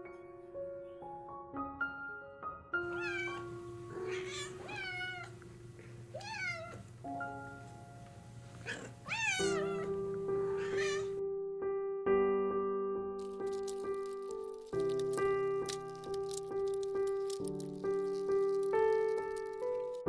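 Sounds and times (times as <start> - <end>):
cat meowing: 2.8 - 5.4, 6.1 - 6.9, 8.6 - 11.2.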